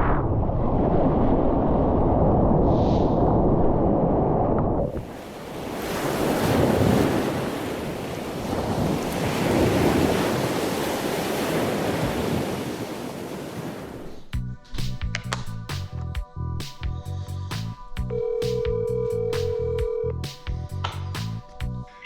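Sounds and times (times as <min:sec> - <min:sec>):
low rumble: 0:00.0 - 0:05.0
wind buffeting microphone: 0:00.0 - 0:14.2
ocean surf breaking: 0:04.8 - 0:14.3.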